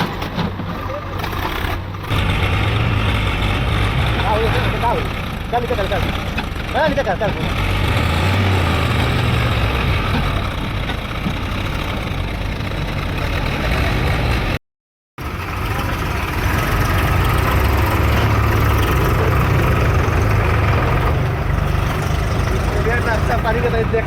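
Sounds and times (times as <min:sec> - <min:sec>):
backhoe loader engine running: 0:00.0 - 0:14.6, 0:15.2 - 0:24.0
diesel tractor engines running: 0:00.0 - 0:14.6, 0:15.2 - 0:24.0.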